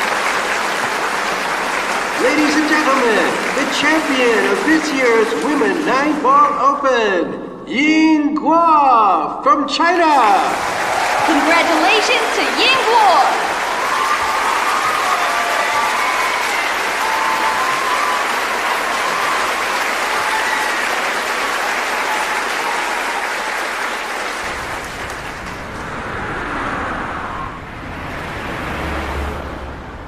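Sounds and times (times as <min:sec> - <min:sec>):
audience applauding: 0:00.0 - 0:06.8, 0:10.0 - 0:26.6
low rumble: 0:24.4 - 0:30.0.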